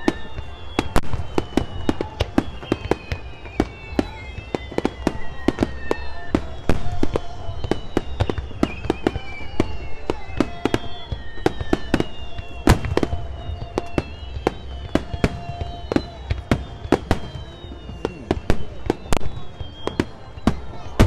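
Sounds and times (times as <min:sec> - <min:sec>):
fireworks bangs and cracks: 0:00.0 - 0:21.0.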